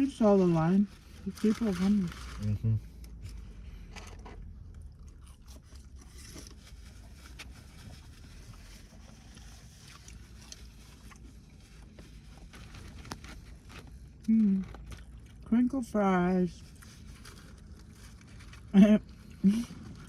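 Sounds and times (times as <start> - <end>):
low steady hum: 0.0 - 20.0
person chewing food: 2.9 - 15.5, 16.6 - 20.0.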